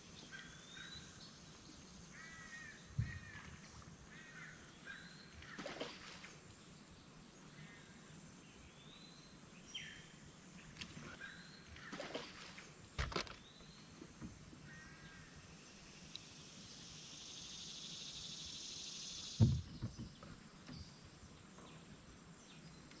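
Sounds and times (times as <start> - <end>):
low thump: 19.4 - 20.2.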